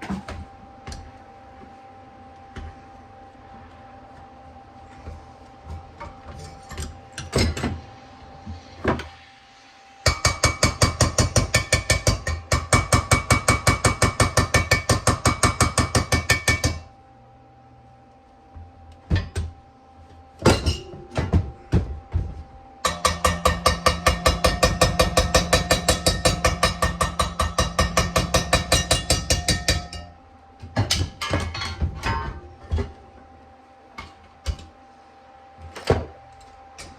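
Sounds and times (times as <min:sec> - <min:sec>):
hammer striking steel: 0:10.0 - 0:16.9, 0:22.9 - 0:30.2.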